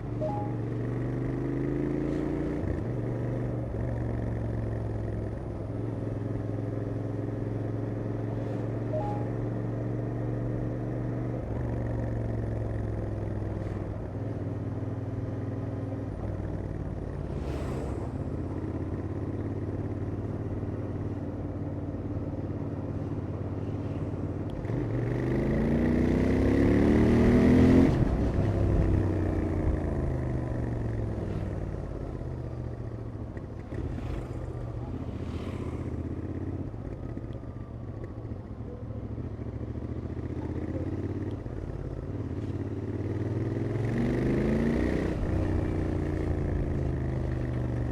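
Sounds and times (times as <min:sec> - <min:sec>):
motorcycle engine revving: 0:24.0 - 0:37.8, 0:39.2 - 0:47.9.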